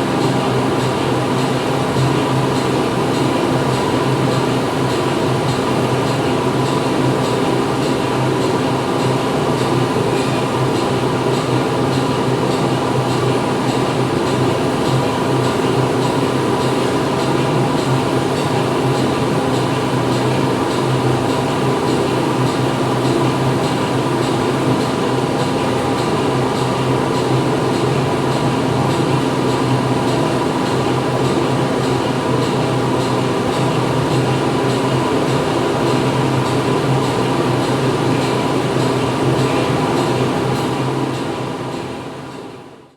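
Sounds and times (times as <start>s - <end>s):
factory machine noise: 0.0s - 42.9s.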